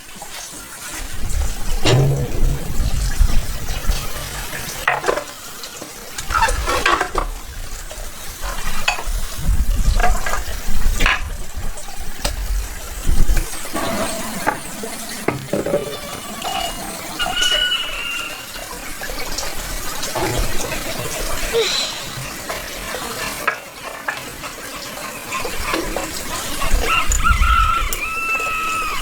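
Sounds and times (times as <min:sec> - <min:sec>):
sharp knock: 0:01.8 - 0:04.0.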